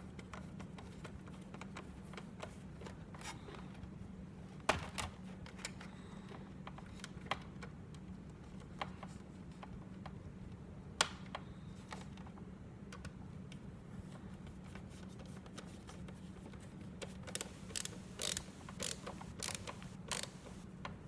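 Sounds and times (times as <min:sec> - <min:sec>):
screwdriver ratchet-like scraping: 0:17.3 - 0:20.6.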